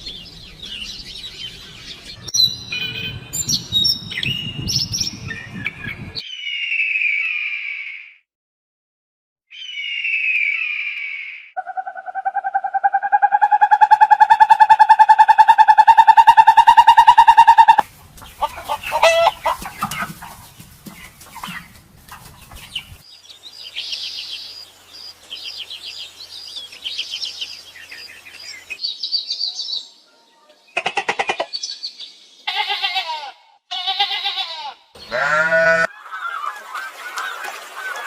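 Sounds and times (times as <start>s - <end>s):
high-pitched bird twittering: 9.5s - 17.8s
animal calls: 11.6s - 17.8s, 18.4s - 20.5s, 32.5s - 38.0s
short pitched calls: 11.6s - 17.8s.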